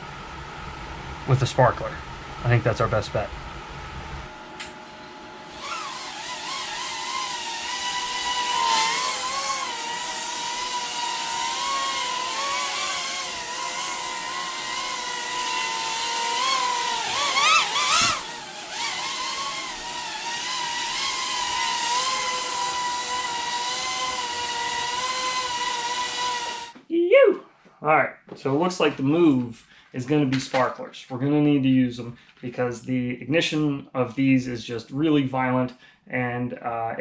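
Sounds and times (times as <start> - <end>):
drone motors whining: 4.5 - 26.8.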